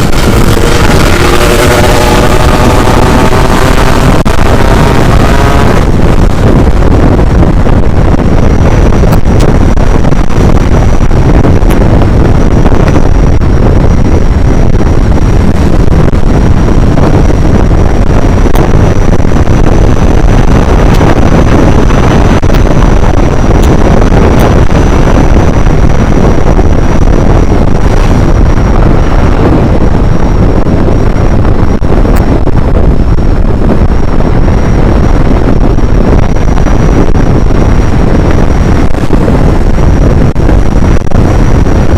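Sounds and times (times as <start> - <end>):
high-pitched steady tone: 0.0 - 11.6
wind rushing over microphone: 0.0 - 41.9.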